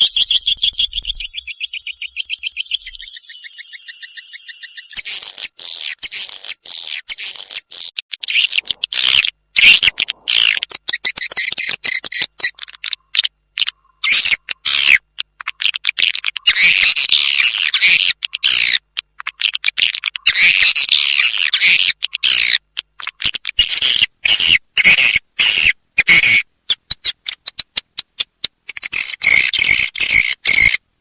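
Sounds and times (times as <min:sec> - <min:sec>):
swiftlet chirps and twittering: 0:00.0 - 0:15.6.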